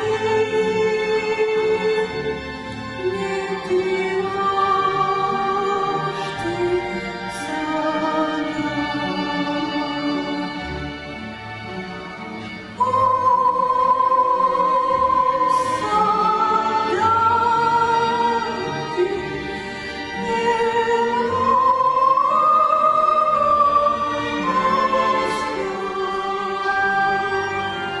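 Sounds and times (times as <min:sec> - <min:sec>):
orchestra playing: 0:00.0 - 0:28.0
high voice singing with vibrato: 0:12.8 - 0:28.0.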